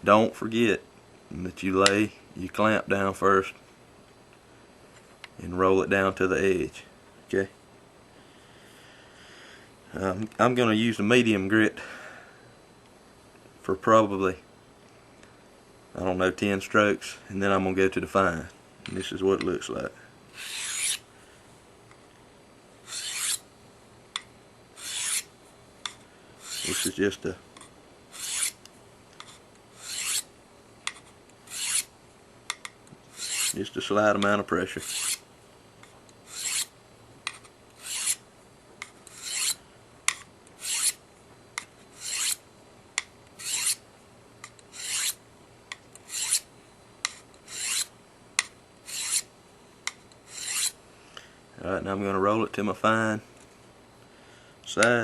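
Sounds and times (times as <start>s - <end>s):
blade scraping on sharpening stone: 20.4s - 21.0s, 22.9s - 23.4s, 24.8s - 25.3s, 26.4s - 27.0s, 28.1s - 28.6s, 29.2s - 30.3s, 31.5s - 31.9s, 33.1s - 33.6s, 34.8s - 35.2s, 36.3s - 36.7s, 37.8s - 38.2s, 39.1s - 39.6s, 40.6s - 41.0s, 42.0s - 42.4s, 43.4s - 43.8s, 44.7s - 45.2s, 46.0s - 47.9s, 48.9s - 49.3s, 50.3s - 50.8s.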